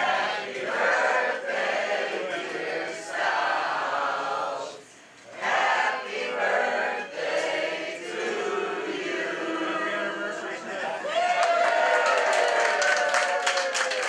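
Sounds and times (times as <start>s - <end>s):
group of voices singing: 0.0s - 10.9s.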